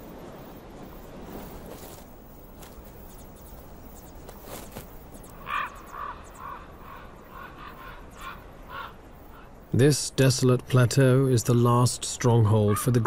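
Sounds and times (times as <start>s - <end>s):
faint rustling: 0.6s - 5.7s
bird harsh calls: 3.1s - 9.7s, 12.5s - 13.0s.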